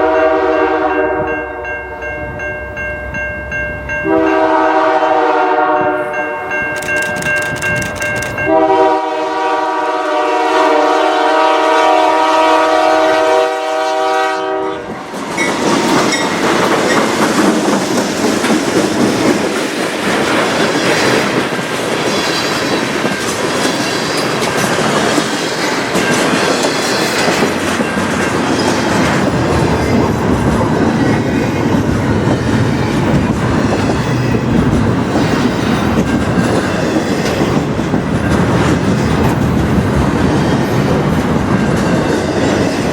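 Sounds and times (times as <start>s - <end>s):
locomotive air horn blast: 0.0s - 1.3s, 4.1s - 6.5s, 8.5s - 14.9s
train passing with wheel clatter: 0.0s - 42.9s.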